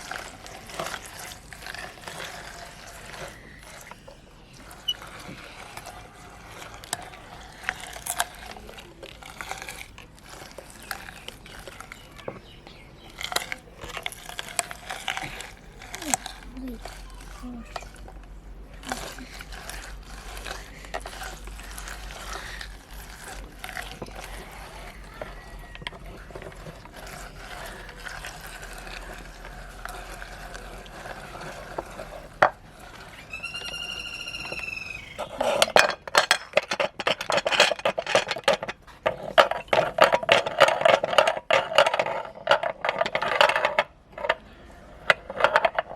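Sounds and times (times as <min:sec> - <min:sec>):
meat grinder crunching carrots: 0:00.0 - 0:45.9
brief high squeak: 0:33.2 - 0:35.4.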